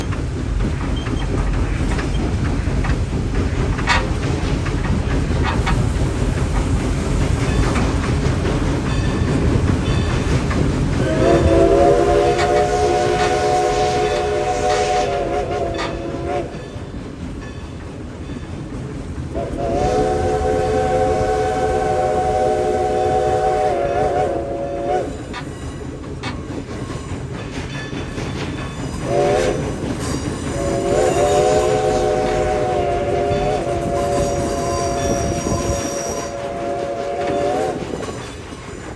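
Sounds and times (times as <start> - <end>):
train rumbling along rails: 0.0 - 38.9
steam whistle blasts: 11.0 - 16.6, 19.4 - 25.2, 29.0 - 29.6, 30.5 - 38.0.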